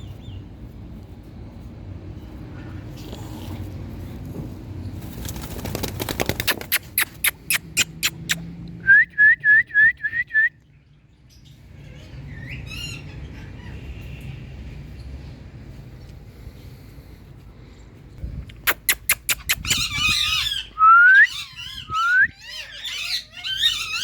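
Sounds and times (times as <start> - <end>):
wing flaps: 5.0 - 7.3
parrot squawk: 18.6 - 24.0
parrot whistling rising notes: 19.0 - 22.4.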